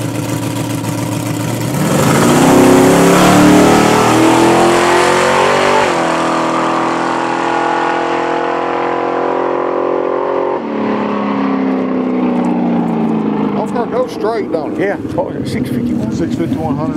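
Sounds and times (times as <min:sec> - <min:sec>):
car engine at full throttle: 0:00.0 - 0:16.9.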